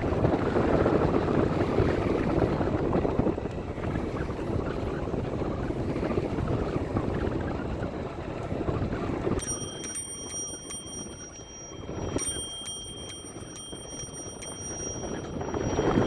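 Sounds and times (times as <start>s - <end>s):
bicycle bell ringing: 9.4s - 16.0s.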